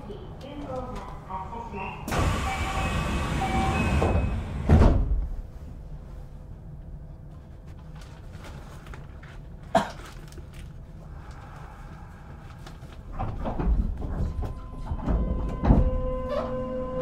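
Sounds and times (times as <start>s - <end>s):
train rumbling: 0.0s - 17.0s
train doors shutting thud: 2.1s - 5.3s, 13.3s - 16.6s
clunks: 13.1s - 16.6s.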